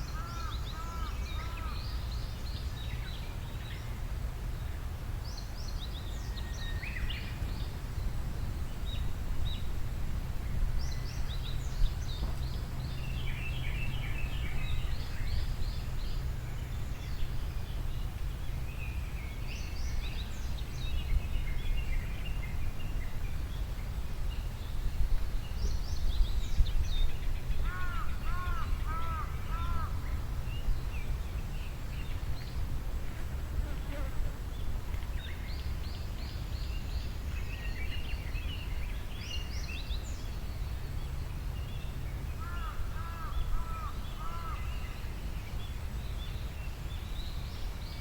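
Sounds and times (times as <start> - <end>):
small birds singing: 10.4 - 32.7, 33.6 - 48.0.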